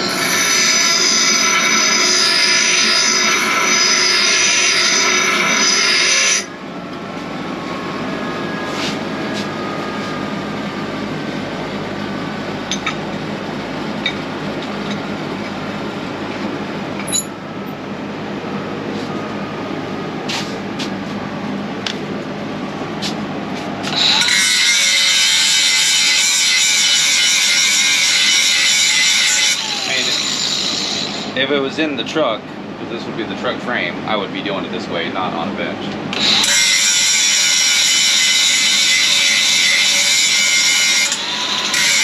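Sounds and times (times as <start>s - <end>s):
angle grinder running: 0.0s - 6.6s, 23.8s - 31.6s, 36.1s - 42.0s.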